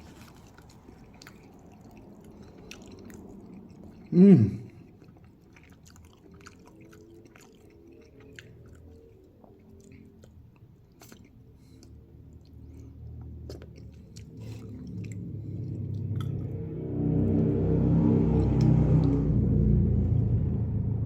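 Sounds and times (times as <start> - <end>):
person chewing: 0.0 - 19.4
wet mouth clicks and smacks: 0.7 - 16.6.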